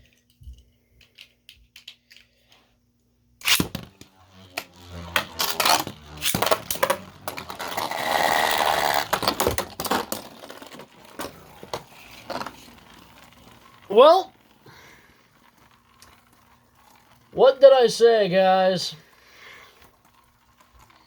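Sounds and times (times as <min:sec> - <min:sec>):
loud grinding scrape: 0:03.4 - 0:13.9
spinning tops clashing: 0:03.4 - 0:14.6
spinning tops launched with crack: 0:03.4 - 0:17.3.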